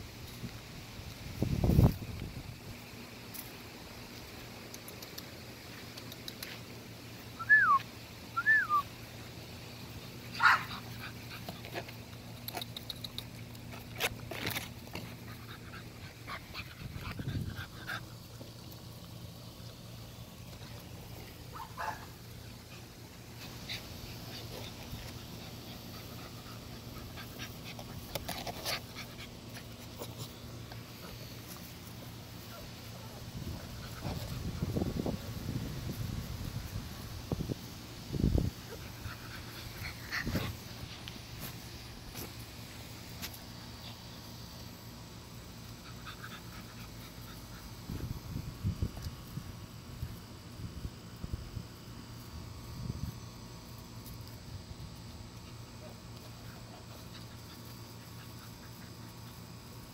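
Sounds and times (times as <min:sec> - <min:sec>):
puppies panting: 0:09.6 - 0:35.2, 0:38.5 - 0:48.4, 0:55.0 - 0:59.9.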